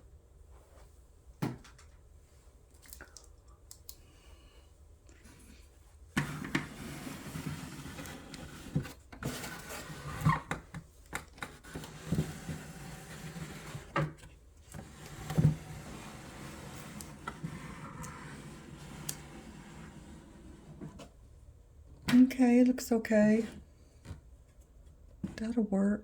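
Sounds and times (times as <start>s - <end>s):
wooden dollhouse knocking and scraping: 6.2s - 19.6s.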